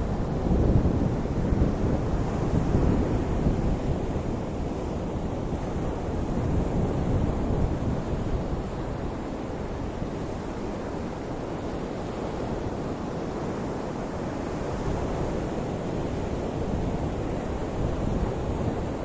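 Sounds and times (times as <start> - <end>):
ocean waves washing ashore: 0.0 - 19.0
wind buffeting microphone: 0.0 - 19.0.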